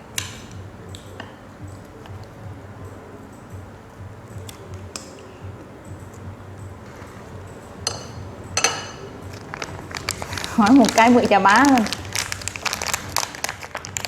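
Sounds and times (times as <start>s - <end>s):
steady low hum: 0.0s - 14.0s
tableware clinking on dishes: 7.0s - 9.4s.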